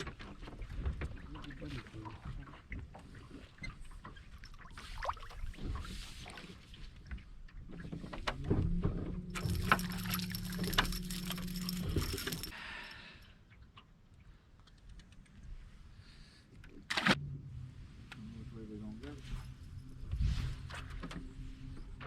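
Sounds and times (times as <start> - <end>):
knocks and rattles on boat: 0.0 - 4.3, 6.9 - 12.5
boat motor humming: 8.1 - 12.6.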